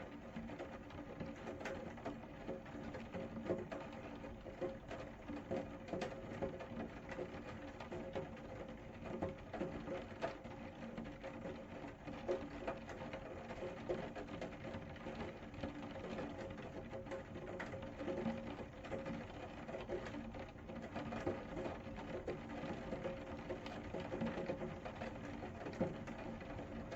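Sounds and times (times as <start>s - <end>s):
rain patter: 0.0s - 26.9s.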